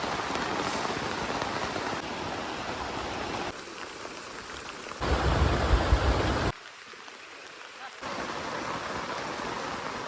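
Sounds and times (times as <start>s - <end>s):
heavy rain falling: 0.0s - 3.5s, 4.2s - 7.1s.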